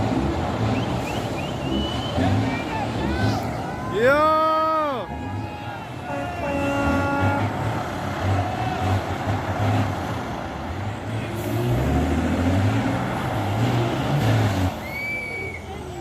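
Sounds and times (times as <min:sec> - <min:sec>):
truck diesel engine revving: 0:00.0 - 0:16.0.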